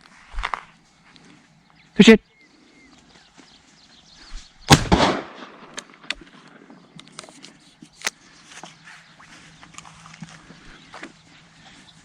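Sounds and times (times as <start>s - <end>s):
shotgun shot with echo: 4.7s - 6.1s
brush rustling: 7.1s - 12.0s.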